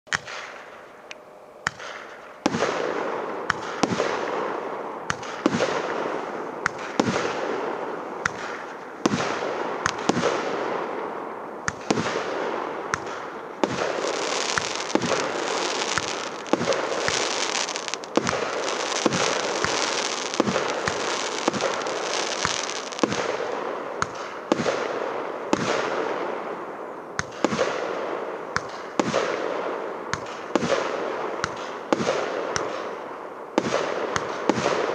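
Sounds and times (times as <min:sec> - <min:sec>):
fireworks crackling: 0:11.7 - 0:25.0
firework launch bangs: 0:12.9 - 0:23.4.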